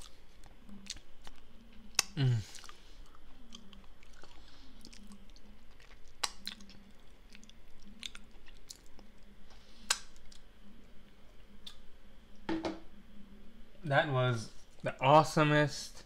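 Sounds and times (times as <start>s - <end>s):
person chewing muffin: 0.0s - 10.6s.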